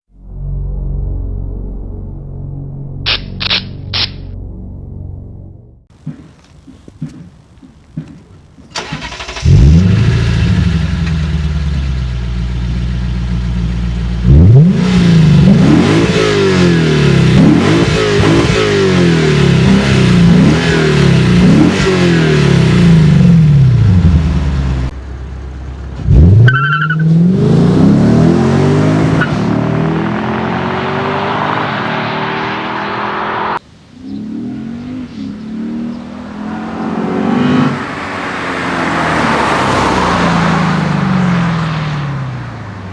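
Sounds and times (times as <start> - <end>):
car engine revving: 0.1 - 42.9
short beep: 3.1 - 4.4.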